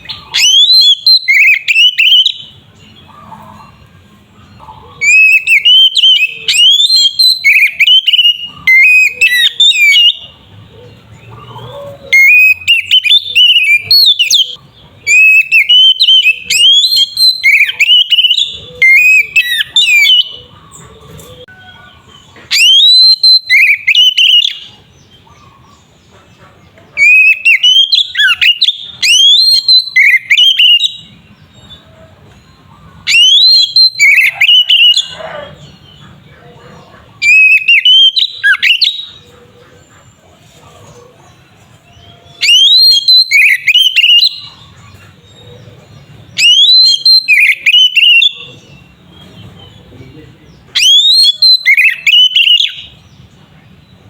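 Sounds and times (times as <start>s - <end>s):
bird singing whistled phrases: 0.0s - 2.6s, 5.0s - 10.3s, 12.1s - 20.4s, 22.5s - 24.7s, 27.0s - 31.1s, 33.1s - 35.4s, 37.2s - 39.2s, 42.3s - 44.6s, 46.3s - 48.7s, 50.7s - 53.0s.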